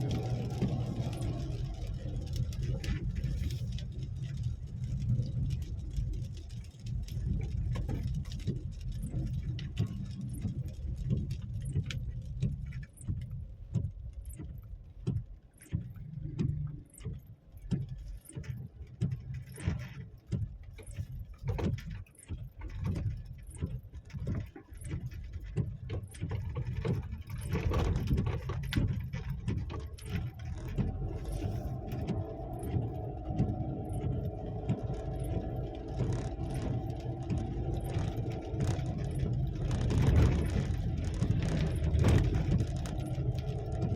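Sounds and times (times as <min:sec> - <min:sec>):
vehicle engine rumbling: 0:00.0 - 0:43.9
knocks and rattles: 0:13.8 - 0:43.9.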